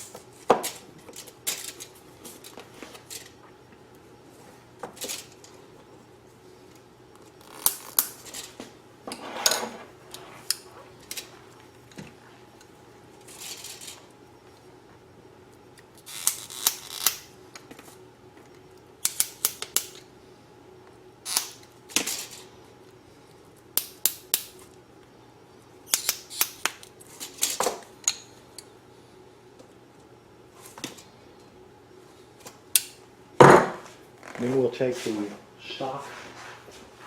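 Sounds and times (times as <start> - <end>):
clicks snaps and scrapes: 25.9 - 28.2.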